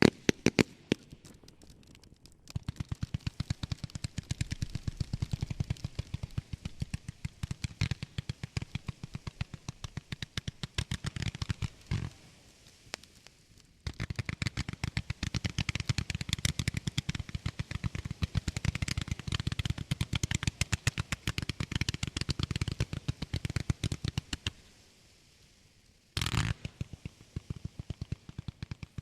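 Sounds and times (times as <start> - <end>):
cluster of firework bangs: 0.0 - 1.5
firework volleys: 0.0 - 24.9, 26.1 - 29.0.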